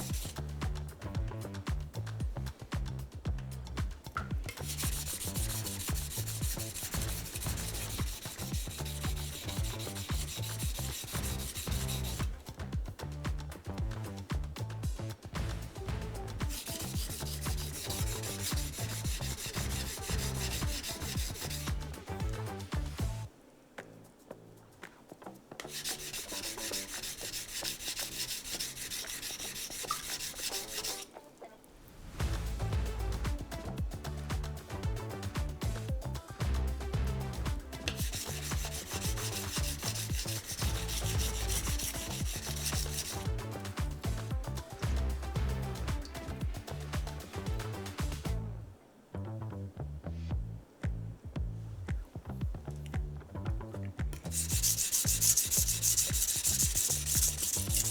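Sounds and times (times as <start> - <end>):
background music: 0.0 - 57.9
knife scraping on whetstone: 4.2 - 12.4, 16.4 - 22.4, 25.6 - 31.1, 37.8 - 44.2, 54.2 - 57.9.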